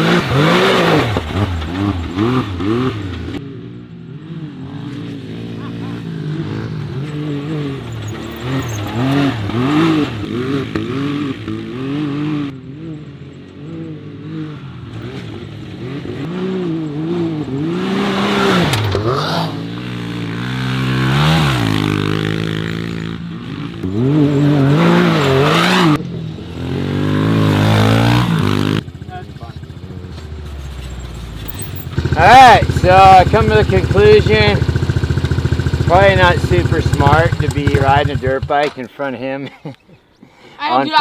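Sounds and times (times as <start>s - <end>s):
engines revving: 0.0s - 39.6s.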